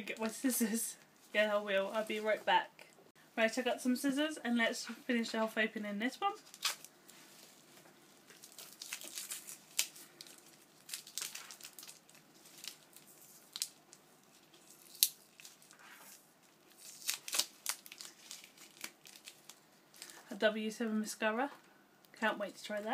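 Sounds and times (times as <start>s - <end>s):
packaging crinkling and tearing: 6.4s - 6.9s, 8.3s - 20.3s.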